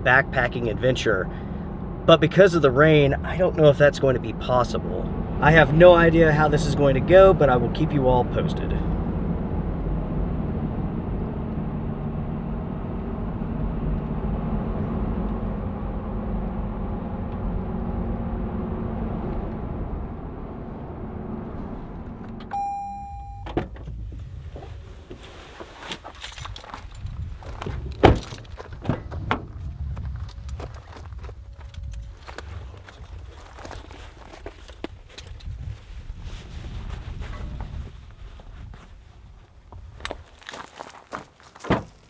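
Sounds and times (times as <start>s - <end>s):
vehicle engine and road noise: 0.0s - 42.0s
short electronic chime: 22.5s - 23.5s
door and gear clunks: 41.6s - 42.0s.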